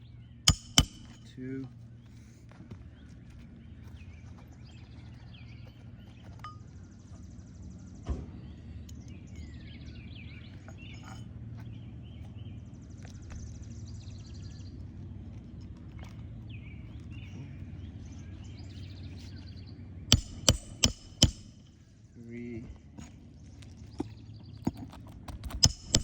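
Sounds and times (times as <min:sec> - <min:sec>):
low outdoor rumble: 0:00.0 - 0:26.0
small birds chirping: 0:00.0 - 0:26.0
sharp knock: 0:00.5 - 0:01.2, 0:20.1 - 0:21.6, 0:25.6 - 0:26.0.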